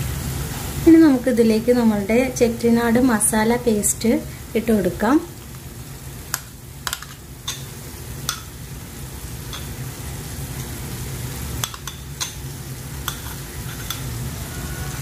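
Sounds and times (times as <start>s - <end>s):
masala sizzling in frying pan: 0.0s - 15.0s
spoon clicking against plate: 6.3s - 7.7s, 11.6s - 12.4s, 13.0s - 14.1s.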